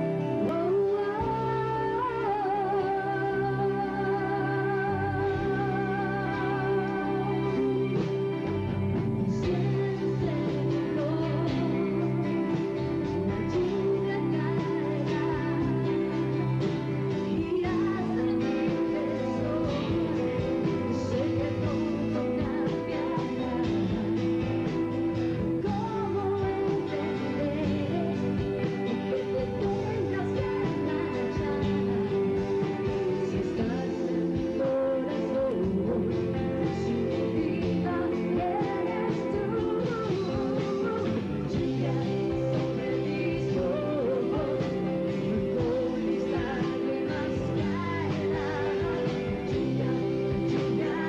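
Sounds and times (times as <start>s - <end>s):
person singing: 0.0s - 51.0s
rock band playing live: 0.0s - 51.0s.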